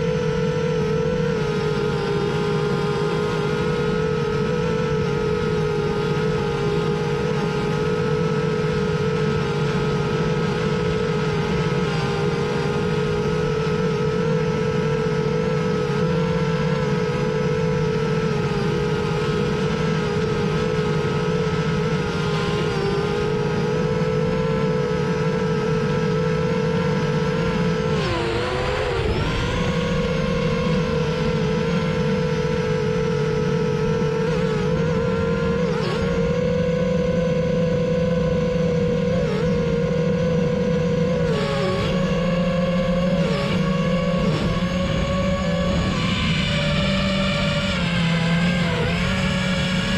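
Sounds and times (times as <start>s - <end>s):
drone propellers whining: 0.0s - 49.9s.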